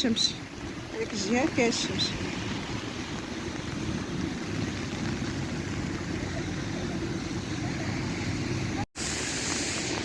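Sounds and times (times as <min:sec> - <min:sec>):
faint hiss: 0:09.0 - 0:10.0.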